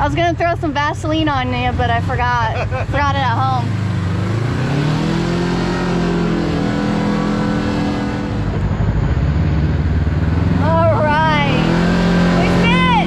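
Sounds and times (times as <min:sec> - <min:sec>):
engine revving: 0:01.2 - 0:13.0.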